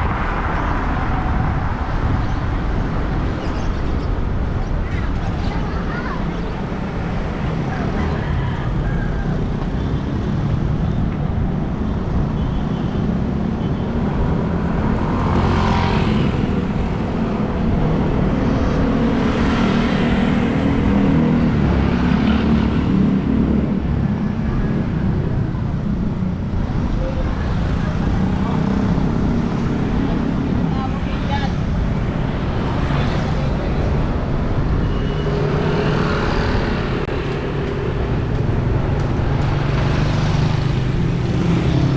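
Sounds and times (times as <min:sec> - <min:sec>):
low rumble of traffic: 0:00.0 - 0:41.9
vehicles passing close: 0:00.0 - 0:41.9.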